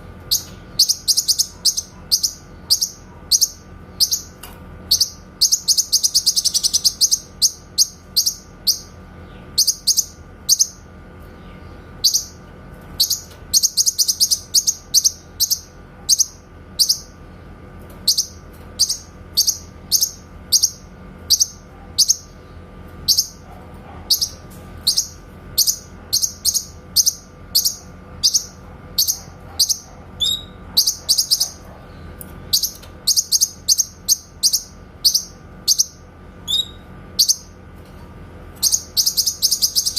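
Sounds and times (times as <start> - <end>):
faint steady hum: 0.0 - 39.9
bird sharp high chirps: 0.3 - 8.9, 32.5 - 37.5, 38.6 - 39.9.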